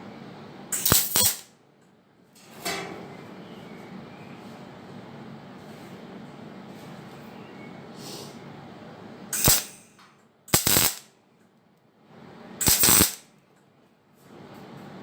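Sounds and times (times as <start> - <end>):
welder click: 0.8 - 1.5, 9.4 - 9.8, 10.5 - 11.1, 12.6 - 13.2
welder crackling bursts: 0.8 - 1.5, 9.4 - 9.8, 10.5 - 11.1, 12.6 - 13.3.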